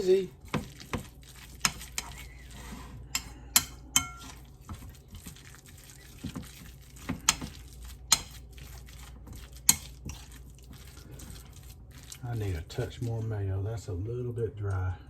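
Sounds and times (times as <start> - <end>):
utensil stirring moist filling: 0.0 - 14.9
utensil clinking against bowl: 3.1 - 4.8.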